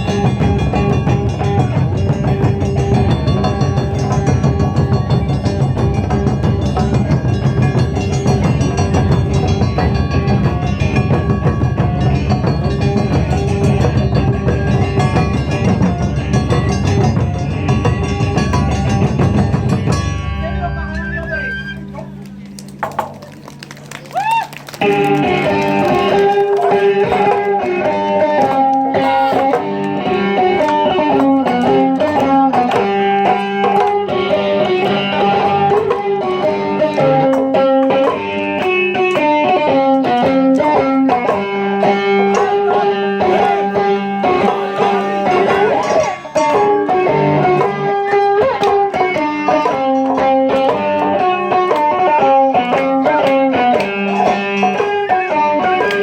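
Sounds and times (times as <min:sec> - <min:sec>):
drum strokes: 0:21.8 - 0:23.8, 0:24.8 - 0:56.0.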